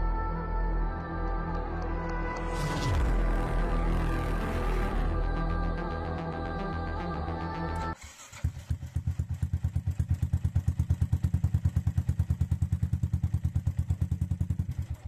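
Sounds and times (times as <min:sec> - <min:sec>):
motorcycle idling: 0:05.2 - 0:15.0.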